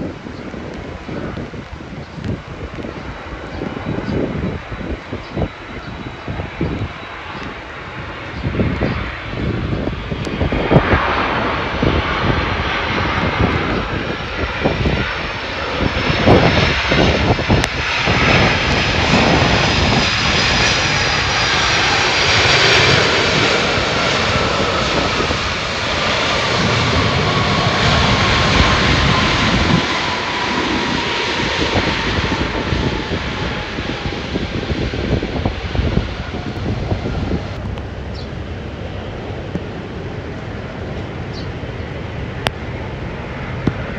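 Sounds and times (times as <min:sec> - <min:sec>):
jet airliner passing: 0:00.0 - 0:43.9
wind buffeting microphone: 0:00.0 - 0:43.9.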